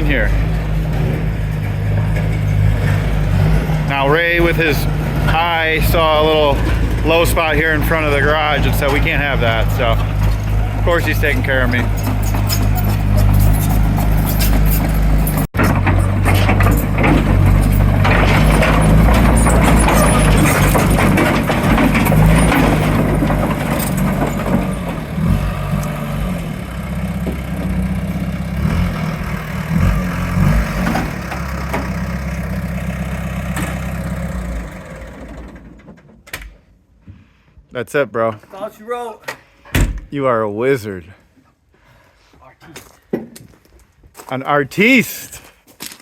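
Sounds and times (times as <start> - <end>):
bulldozer diesel engine running: 0.0 - 35.9.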